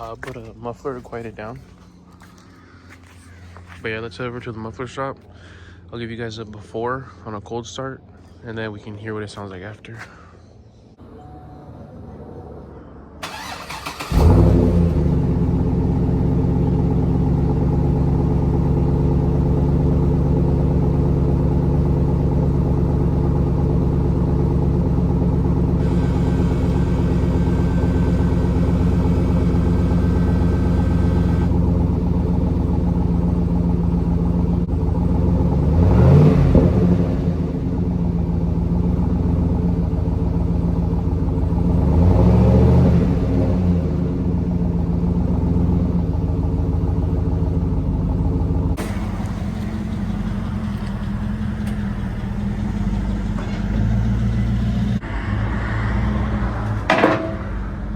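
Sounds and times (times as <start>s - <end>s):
car engine starting and idling: 0.0s - 5.9s, 12.0s - 57.9s
engine revving: 13.2s - 18.0s, 25.5s - 31.6s, 34.8s - 38.3s, 41.5s - 44.3s, 48.7s - 57.6s.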